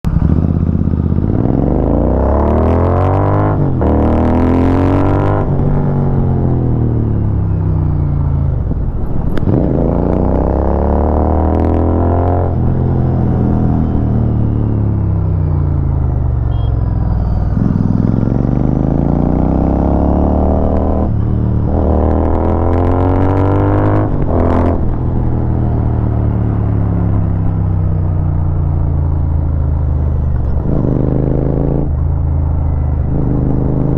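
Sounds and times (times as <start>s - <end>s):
motorcycle engine revving: 0.0s - 33.9s
wind noise: 8.3s - 14.6s.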